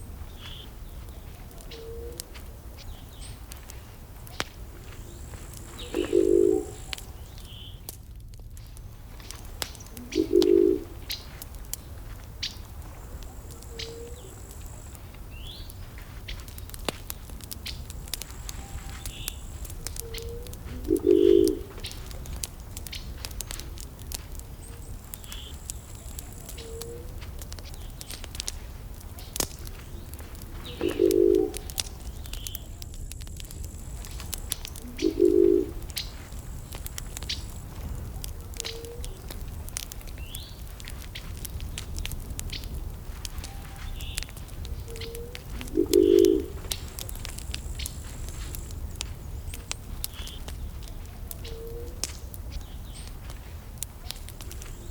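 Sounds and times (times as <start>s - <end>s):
wood fire crackling and popping: 0.0s - 54.9s
low hooting call: 5.2s - 7.3s, 9.9s - 11.1s, 13.1s - 14.9s, 18.5s - 22.0s, 30.6s - 32.7s, 34.6s - 36.2s, 44.7s - 47.0s.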